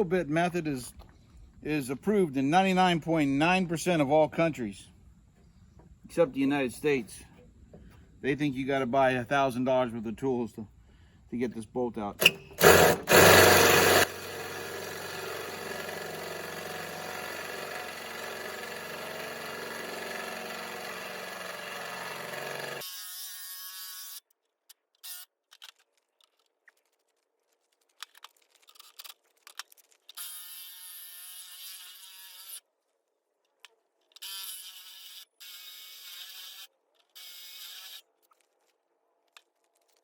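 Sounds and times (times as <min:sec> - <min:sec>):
electric drill whining: 0:12.2 - 0:24.2.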